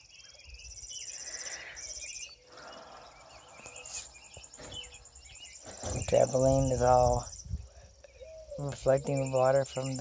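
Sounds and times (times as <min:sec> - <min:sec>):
birds chirping: 0:00.0 - 0:10.0
insects trilling: 0:00.0 - 0:10.0.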